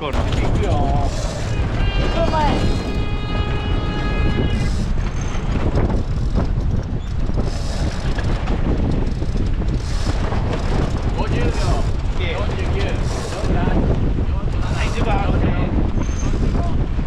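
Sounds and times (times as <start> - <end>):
wind buffeting microphone: 0.0 - 17.0
steady high-pitched tone: 1.1 - 4.9.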